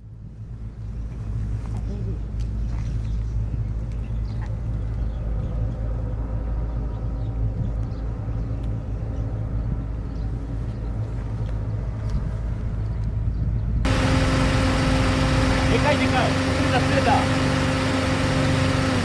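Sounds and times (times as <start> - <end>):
engine idling hum: 13.9 - 19.0.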